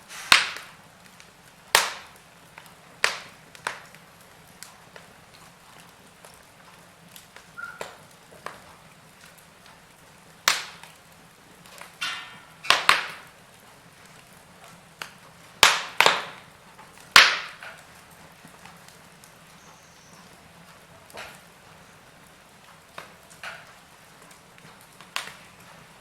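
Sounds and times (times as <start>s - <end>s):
fire hiss: 0.0s - 20.4s
burning logs crackling: 0.0s - 26.0s
fire pops and snaps: 0.0s - 26.0s.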